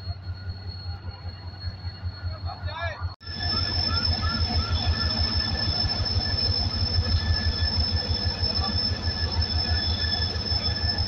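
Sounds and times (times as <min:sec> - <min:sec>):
high-pitched metal squeal: 0:03.3 - 0:11.0.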